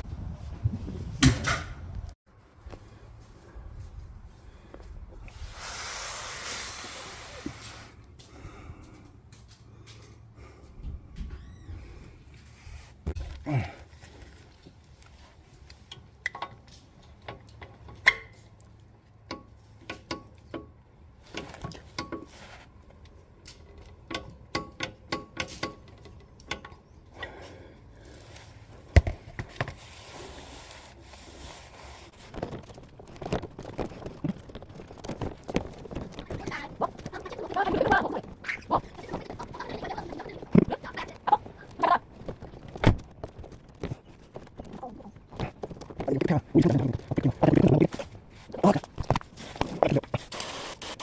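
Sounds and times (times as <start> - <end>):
hand tools and metal parts clinking: 14.8 - 27.4.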